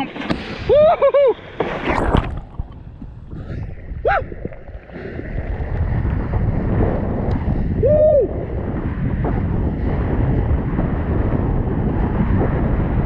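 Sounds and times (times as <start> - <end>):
wind buffeting microphone: 0.0 - 13.0
pitched whoops: 0.7 - 1.4, 4.0 - 4.3, 7.8 - 8.4.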